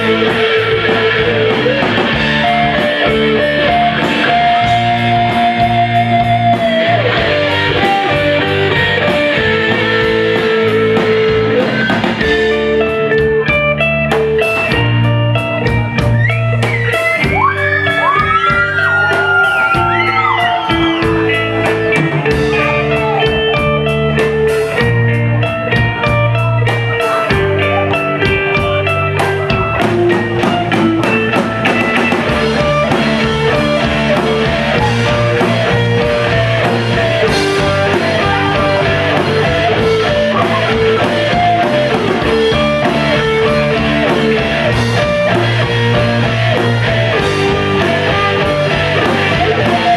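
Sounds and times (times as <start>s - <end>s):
bass and drums: 0.0s - 49.9s
rock guitar lead: 0.0s - 49.9s.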